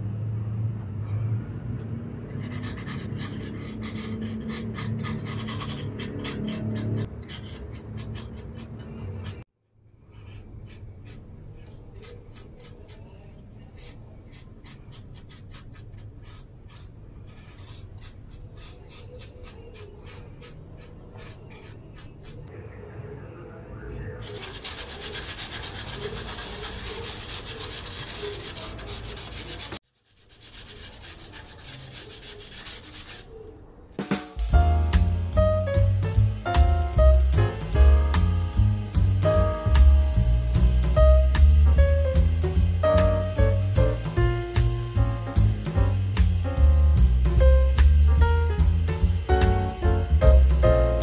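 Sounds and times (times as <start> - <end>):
drawing strokes scratching: 2.3 - 22.5, 24.2 - 33.5.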